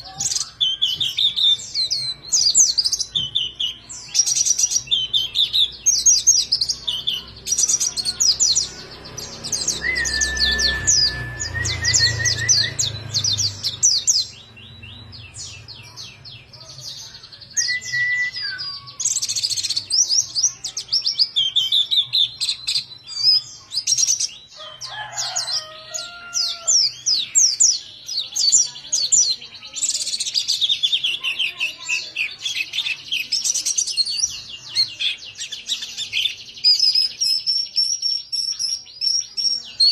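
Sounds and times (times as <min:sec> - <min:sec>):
bird twittering chirps: 0:00.0 - 0:39.9
bird whistled notes: 0:09.7 - 0:12.8, 0:17.6 - 0:19.0.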